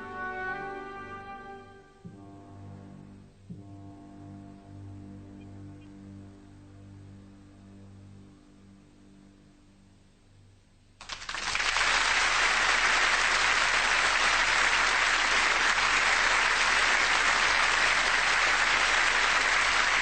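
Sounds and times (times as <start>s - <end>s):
faint music notes: 0.0s - 11.0s
audience applause: 11.0s - 20.0s.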